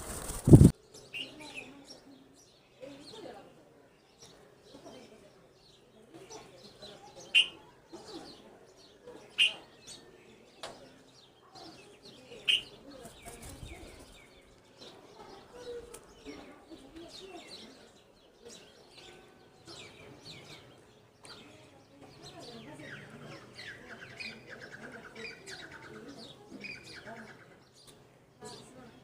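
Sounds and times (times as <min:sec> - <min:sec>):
faint bird chirps: 0:05.7 - 0:28.7
sharp bird calls: 0:07.2 - 0:08.2, 0:09.2 - 0:10.1, 0:11.6 - 0:14.5.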